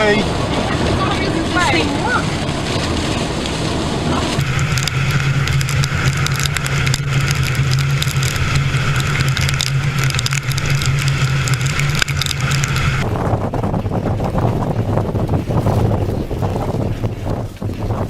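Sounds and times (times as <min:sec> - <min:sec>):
vehicle engine and road drone: 0:00.0 - 0:18.0
sharp ticks: 0:04.4 - 0:13.0.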